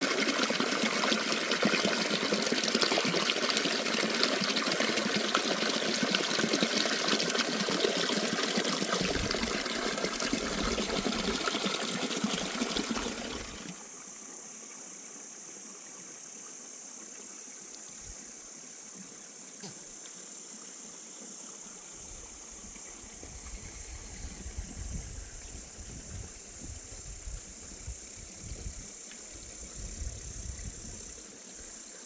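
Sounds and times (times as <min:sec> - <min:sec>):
water rushing: 0:00.0 - 0:13.8.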